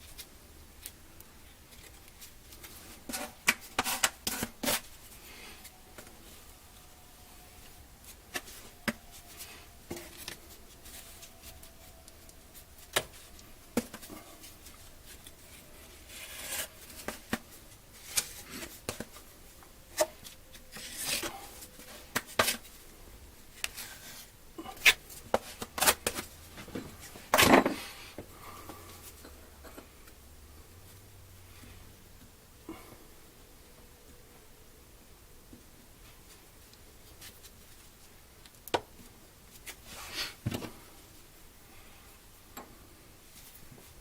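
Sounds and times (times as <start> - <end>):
clicks taps and scraping: 16.1 - 19.3.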